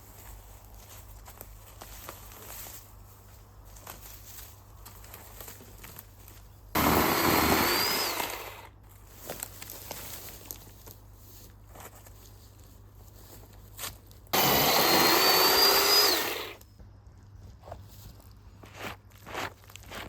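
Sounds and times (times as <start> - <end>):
power tool whine: 6.8 - 8.7, 14.4 - 16.6.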